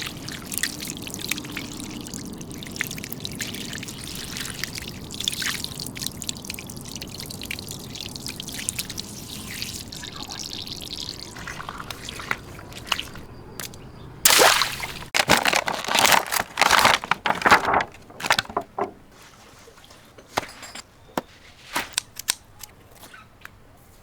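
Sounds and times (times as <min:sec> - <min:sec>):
water gushing and splashing: 0:00.0 - 0:13.3, 0:14.3 - 0:19.1
water-filled toy bursting: 0:00.0 - 0:13.3, 0:14.3 - 0:17.2
water drips and splats: 0:00.0 - 0:20.0.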